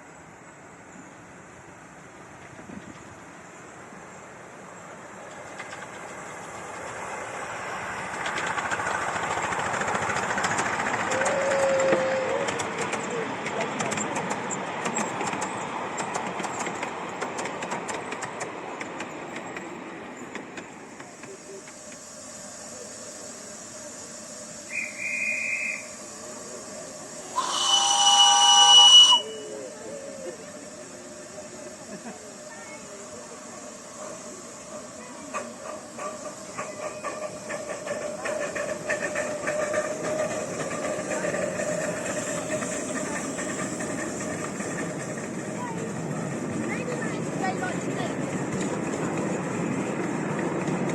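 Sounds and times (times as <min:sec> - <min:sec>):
train rumbling along track: 0:00.0 - 0:50.9
wheels clicking over rail joints: 0:05.0 - 0:22.1, 0:30.2 - 0:50.9.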